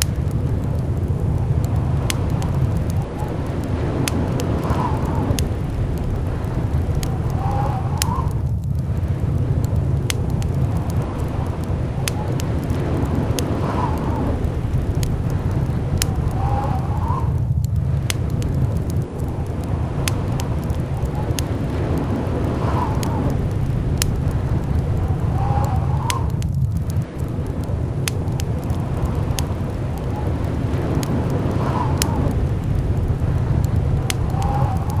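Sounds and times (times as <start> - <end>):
sharp ticks: 0.0 - 16.5, 17.4 - 24.8
blizzard wind rumbling: 0.0 - 35.0
faint wind whistle: 0.2 - 35.0.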